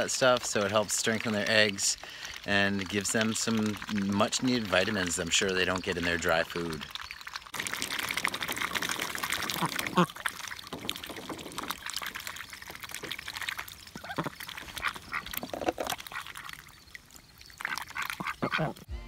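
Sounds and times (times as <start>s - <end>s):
ducks splashing and slurping: 0.0s - 18.9s
duck calls: 17.7s - 18.9s.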